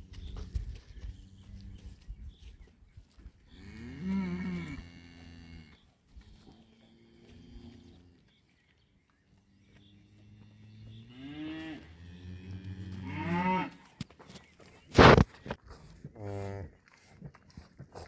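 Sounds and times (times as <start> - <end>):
cow mooing: 10.9 - 13.8.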